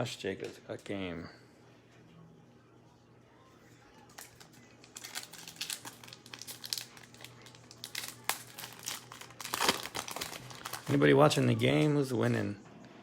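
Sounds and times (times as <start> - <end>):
foil wrapper crinkling and tearing: 4.1 - 11.4.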